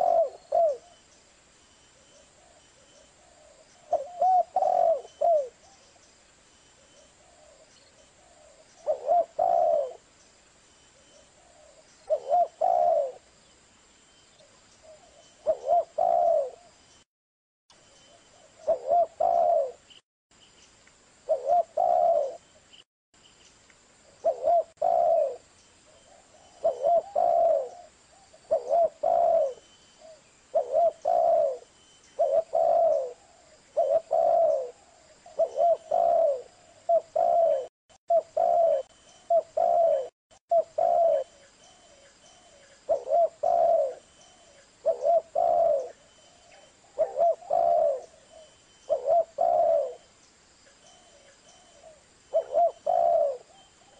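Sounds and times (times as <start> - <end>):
dove cooing: 0.0 - 1.0, 3.2 - 5.8, 7.1 - 10.1, 11.3 - 13.3, 14.8 - 16.7, 18.4 - 19.9, 21.3 - 22.4, 24.2 - 50.1, 50.8 - 53.9.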